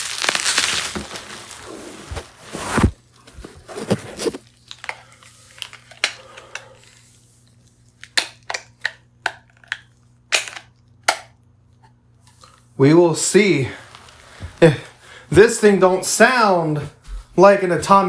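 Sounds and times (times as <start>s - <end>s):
crinkly rustling: 0.0s - 4.8s, 13.2s - 15.3s.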